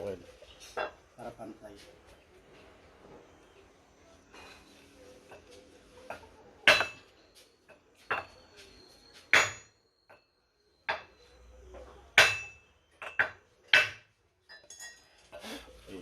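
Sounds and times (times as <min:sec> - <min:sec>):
hammer striking wooden block: 0:09.3 - 0:09.6.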